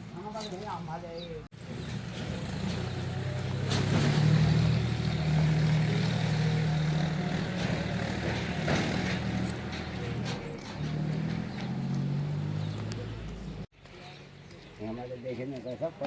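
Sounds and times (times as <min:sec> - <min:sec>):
engine humming: 0:01.3 - 0:14.0.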